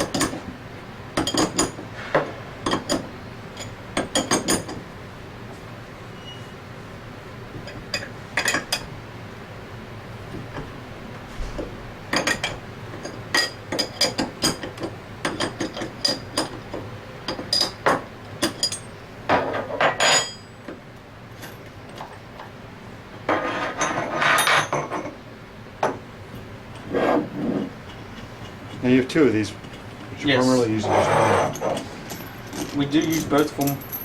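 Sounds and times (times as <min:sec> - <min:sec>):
metal tools clinking: 0:18.4 - 0:20.6, 0:31.0 - 0:34.0
metal scraping and rattling: 0:29.6 - 0:34.0.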